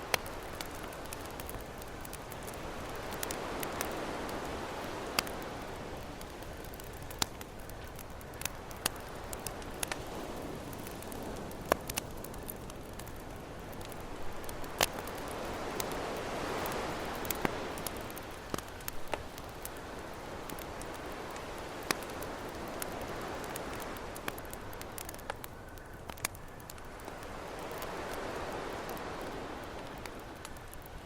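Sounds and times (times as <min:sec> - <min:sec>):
ocean waves: 0:00.0 - 0:07.2, 0:08.4 - 0:25.2, 0:27.0 - 0:30.8
campfire crackling and popping: 0:00.0 - 0:31.0.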